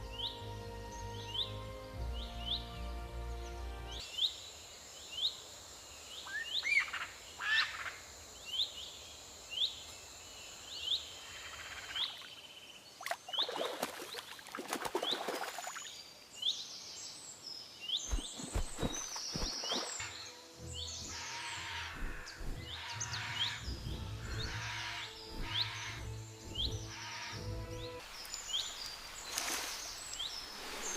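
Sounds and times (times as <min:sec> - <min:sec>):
bird chirping: 0:14.9 - 0:30.9
rustling: 0:18.1 - 0:19.7.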